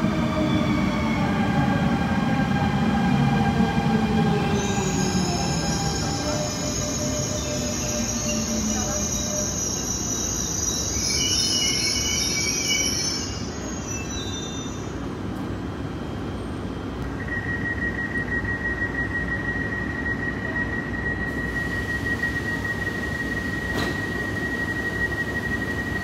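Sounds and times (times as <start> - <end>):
standing train hum: 0.0 - 26.0
wheel and brake squeal: 4.8 - 14.8.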